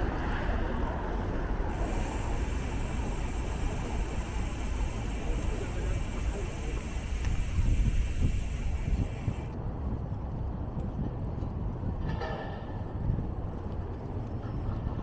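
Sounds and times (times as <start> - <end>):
city street traffic rumble: 0.0 - 9.6.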